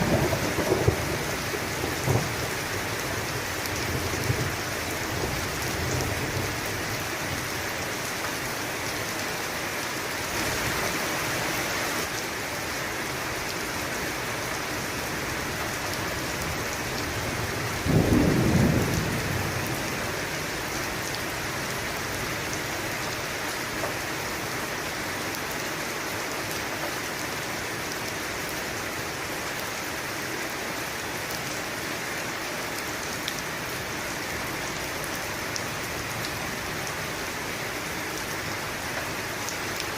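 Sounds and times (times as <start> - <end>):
thunder rumble: 0.0 - 2.8, 17.4 - 20.0
heavy rain: 0.0 - 39.9.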